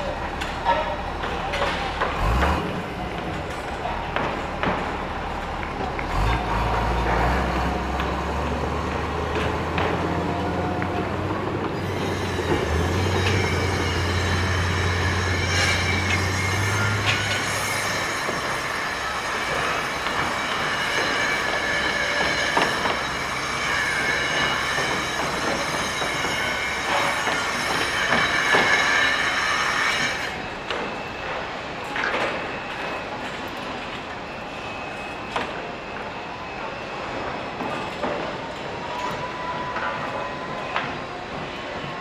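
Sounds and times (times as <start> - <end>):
heavy vehicle rolling past: 0.1 - 20.5
high metallic squeal: 6.1 - 41.9.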